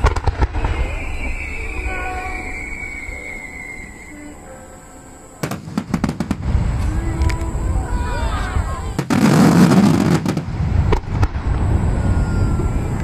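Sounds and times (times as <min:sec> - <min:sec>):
fireworks bursting with cracks: 0:00.0 - 0:03.6, 0:05.4 - 0:13.0
fireworks crackle: 0:00.0 - 0:04.4, 0:05.4 - 0:13.0
fireworks whistling: 0:00.0 - 0:13.0
low rumbling boom: 0:05.9 - 0:13.0.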